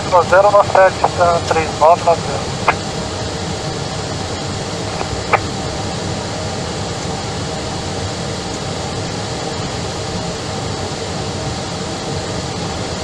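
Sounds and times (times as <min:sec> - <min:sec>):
faint hum: 0:00.0 - 0:13.0
jet airliner engines droning: 0:00.0 - 0:13.0.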